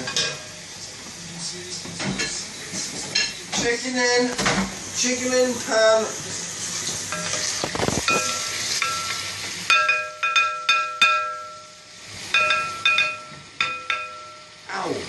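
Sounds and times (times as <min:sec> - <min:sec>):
chicken sizzling in frying pan: 0:00.0 - 0:15.0
utensil striking metal pan: 0:07.1 - 0:14.6.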